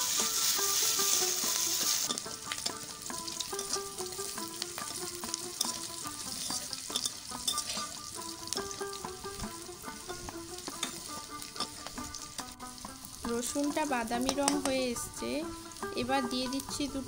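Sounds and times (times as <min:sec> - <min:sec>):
food sizzling in hot oil: 0:00.0 - 0:17.0
metal spatula scraping pan: 0:05.6 - 0:08.7.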